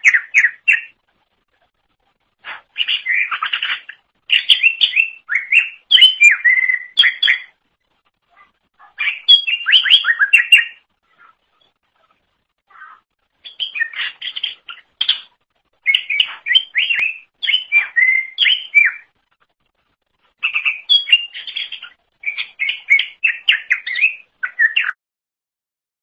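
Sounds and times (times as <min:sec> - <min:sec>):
bird singing chirps and whistles: 0:00.0 - 0:01.0, 0:02.5 - 0:07.6, 0:08.9 - 0:10.9, 0:13.4 - 0:19.1, 0:20.4 - 0:25.0.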